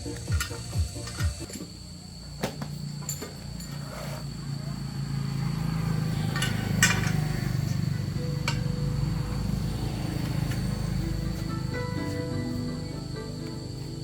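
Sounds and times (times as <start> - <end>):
metal tools clinking: 3.0 - 4.1, 6.3 - 7.3
low mechanical rumble: 4.4 - 12.1.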